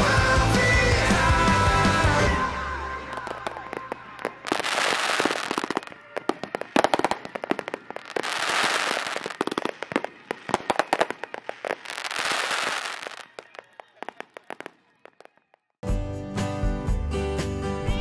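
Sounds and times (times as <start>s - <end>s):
crackling firework hiss: 3.2s - 15.4s.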